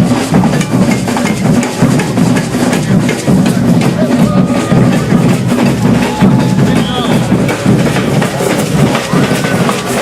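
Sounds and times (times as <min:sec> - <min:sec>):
bass drums beating: 0:00.0 - 0:10.0
snare drums beating: 0:00.0 - 0:10.0.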